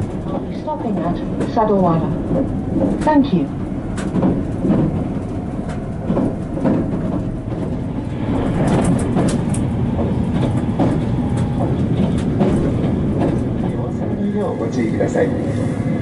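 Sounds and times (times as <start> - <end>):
wheels rumbling on rails: 0.0 - 16.0.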